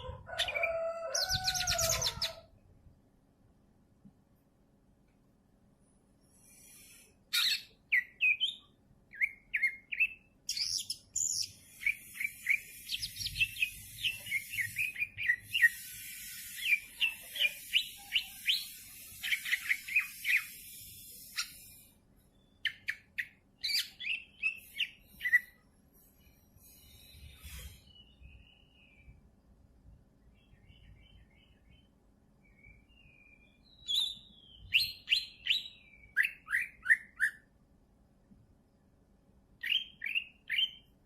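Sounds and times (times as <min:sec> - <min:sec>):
bird singing chirps and whistles: 0:07.3 - 0:21.8, 0:22.4 - 0:25.6, 0:26.7 - 0:29.1, 0:32.4 - 0:37.5, 0:39.6 - 0:40.9.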